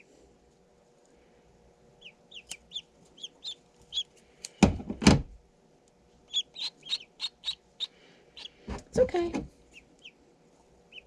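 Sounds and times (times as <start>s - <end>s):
duckling peeping: 1.9s - 4.2s, 6.2s - 8.7s, 9.6s - 10.2s.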